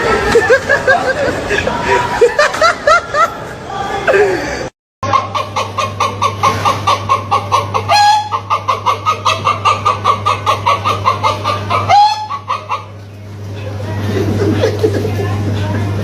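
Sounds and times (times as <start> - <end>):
chicken squawk: 5.0 - 13.0
chicken clucking: 5.0 - 15.8.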